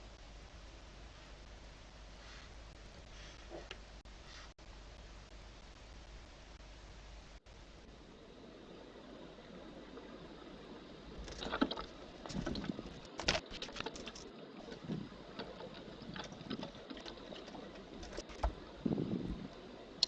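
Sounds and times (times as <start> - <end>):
birds scratching and rustling: 11.1 - 19.7.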